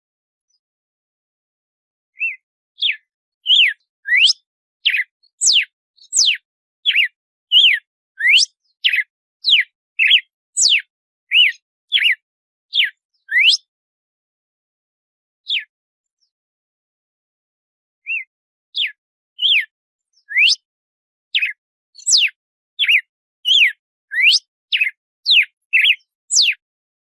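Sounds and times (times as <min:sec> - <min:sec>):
bird whistling song: 0:02.1 - 0:13.7, 0:15.4 - 0:16.4, 0:18.0 - 0:20.7, 0:21.3 - 0:26.6.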